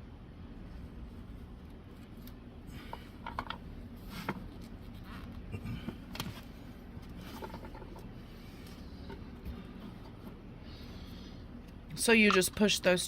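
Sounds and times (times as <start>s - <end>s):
steady low hum: 0.0s - 13.0s
plastic pipe clicking and scraping: 7.1s - 8.1s.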